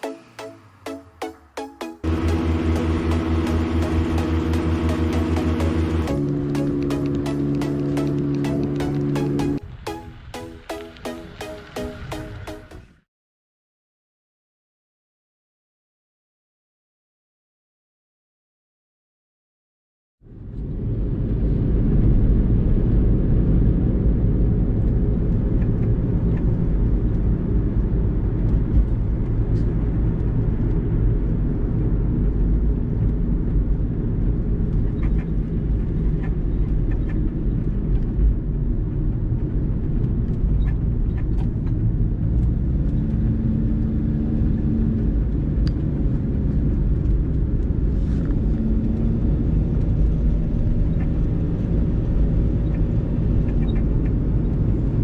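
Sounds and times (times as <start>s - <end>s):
engine rumbling: 2.0s - 9.6s.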